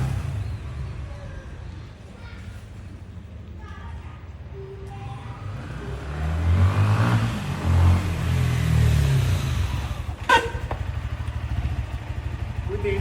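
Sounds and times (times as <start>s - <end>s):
motorcycle engine accelerating: 0.0s - 1.7s, 5.3s - 13.0s.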